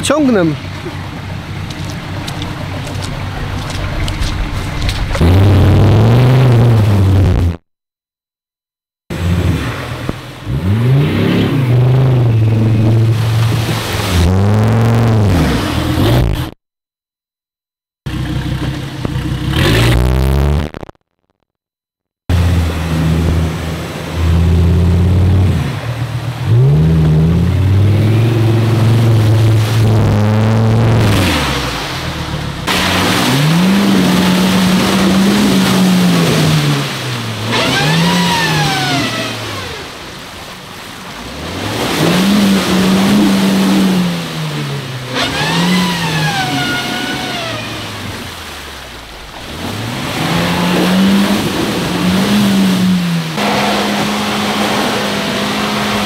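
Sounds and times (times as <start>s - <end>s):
high whine: 0.0s - 7.6s
off-road engine revving hard: 0.0s - 7.6s, 9.1s - 16.6s, 18.0s - 20.8s, 22.3s - 56.0s.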